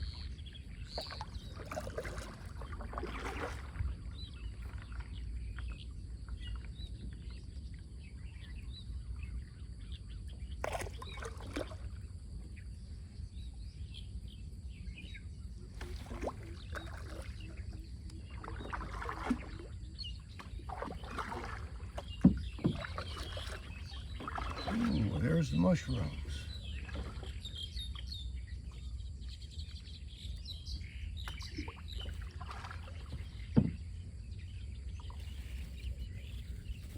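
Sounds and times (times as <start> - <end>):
faint birds chirping: 0.0 - 36.9
water splashing: 1.0 - 5.1, 10.6 - 11.9, 15.7 - 27.4, 31.3 - 33.7
knocks on boat hull: 33.5 - 33.8.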